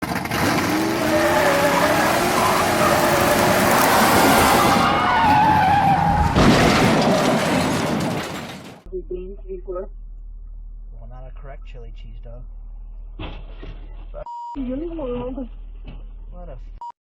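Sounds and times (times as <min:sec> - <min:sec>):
car tyres squealing: 0:00.0 - 0:08.8
loud road noise: 0:00.0 - 0:08.9.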